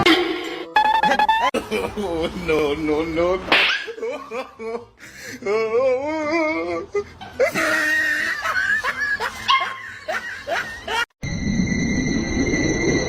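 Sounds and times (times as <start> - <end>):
person laughing: 0.8 - 3.0, 3.9 - 11.1.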